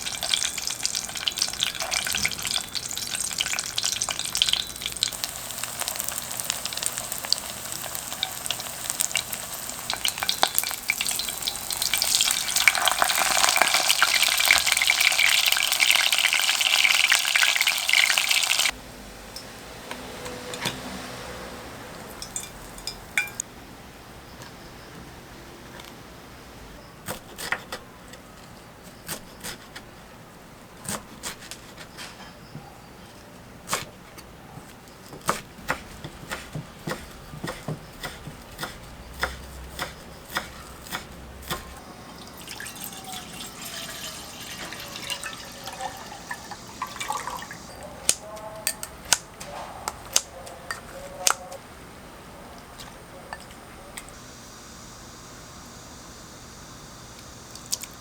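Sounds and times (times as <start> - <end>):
utensils and dishes clicking: 0.0 - 16.4, 19.3 - 21.0, 22.1 - 23.5
liquid pouring: 42.1 - 47.6.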